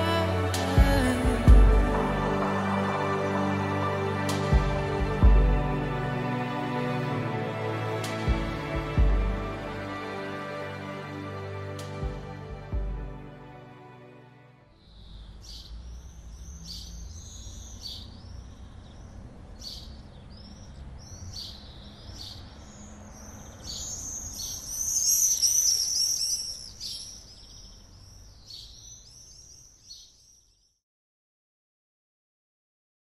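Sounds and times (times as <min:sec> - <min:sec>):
low steady rumble: 0:00.0 - 0:09.8
small birds chirping: 0:14.7 - 0:30.8.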